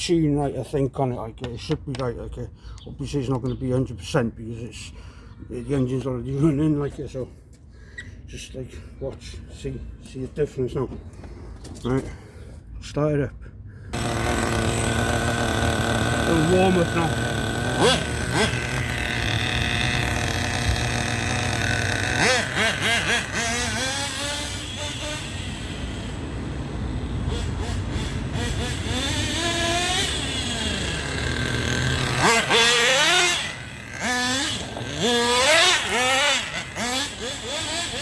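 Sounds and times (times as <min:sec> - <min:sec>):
small nitro engine revving: 0:13.9 - 0:38.0.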